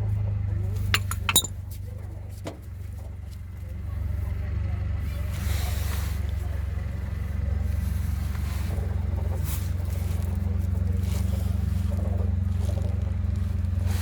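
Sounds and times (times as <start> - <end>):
car engine running: 6.3 - 14.0.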